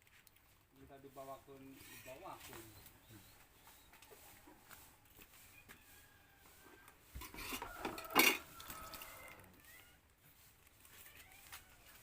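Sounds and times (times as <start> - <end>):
tableware clattering: 7.2 - 9.1.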